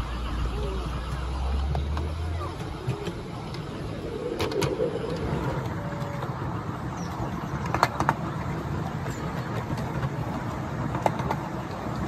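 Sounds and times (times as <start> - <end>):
wheels rumbling on rail: 0.0 - 12.0.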